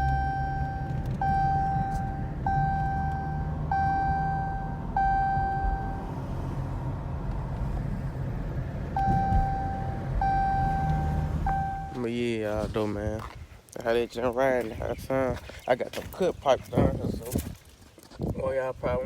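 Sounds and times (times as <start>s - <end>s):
seatbelt warning chime beeping: 0.0s - 6.2s, 8.9s - 12.1s
car driving rumble: 0.0s - 17.2s.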